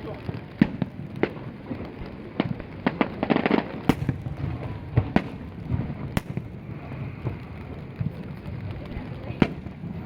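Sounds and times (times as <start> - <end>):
crackling pops: 0.0 - 10.0
fireworks bursting with bangs: 0.0 - 10.0.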